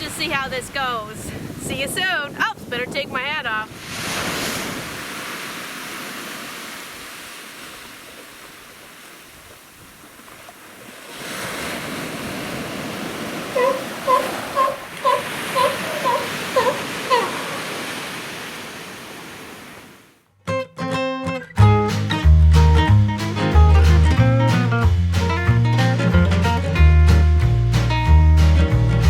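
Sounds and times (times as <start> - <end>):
ocean surf washing: 3.4 - 20.2
short pitched calls: 13.5 - 18.0.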